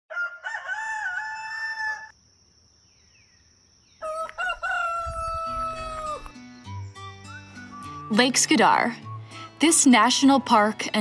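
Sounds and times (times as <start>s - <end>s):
rooster crowing: 0.1s - 2.1s, 4.0s - 6.3s.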